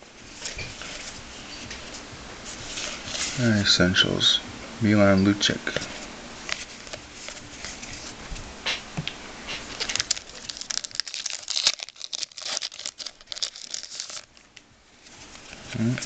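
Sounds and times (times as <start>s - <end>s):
wrapper crinkling and tearing: 9.6s - 14.5s.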